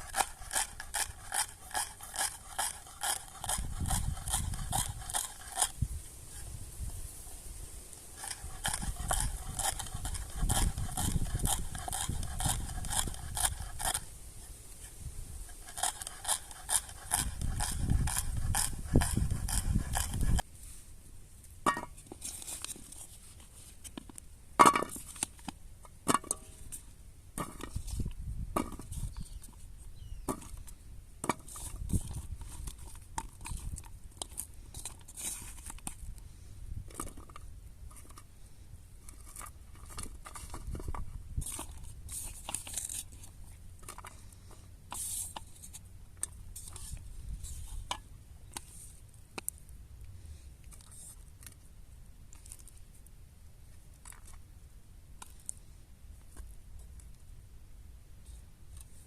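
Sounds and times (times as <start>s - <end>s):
objects handled clicking and rustling: 8.2s - 14.1s, 30.3s - 36.2s, 36.9s - 38.3s, 39.0s - 49.6s, 53.9s - 54.4s.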